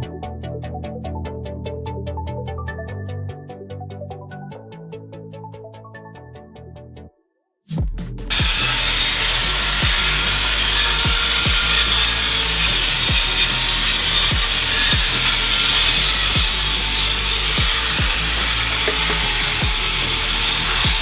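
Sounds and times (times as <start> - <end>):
music with thumping beat: 7.7 - 21.0
power tool grinding metal: 8.3 - 21.0.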